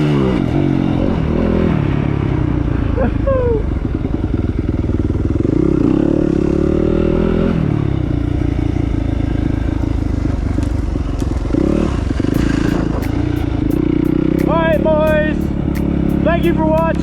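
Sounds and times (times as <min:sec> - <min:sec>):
dirt bike engine revving: 0:05.4 - 0:07.9, 0:11.3 - 0:17.0.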